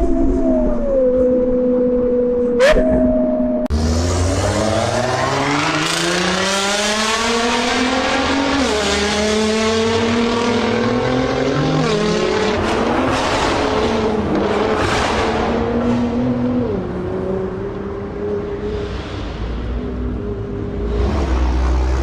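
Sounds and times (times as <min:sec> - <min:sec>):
car engine accelerating hard: 0:03.7 - 0:22.0.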